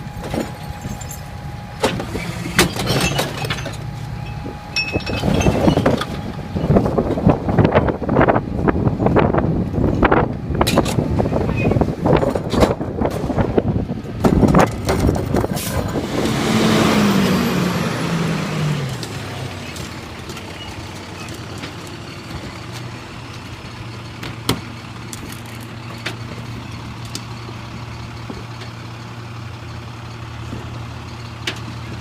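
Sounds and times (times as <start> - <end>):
diesel engine revving and idling: 0.0 - 32.0.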